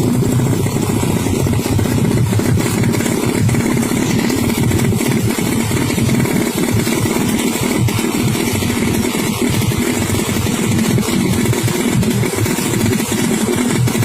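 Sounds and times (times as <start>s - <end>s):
motorcycle engine running steadily: 0.0s - 14.0s.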